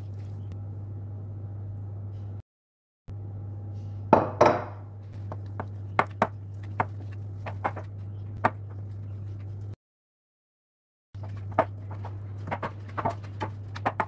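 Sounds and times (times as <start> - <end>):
low hum: 0.0 - 2.4, 3.1 - 9.8.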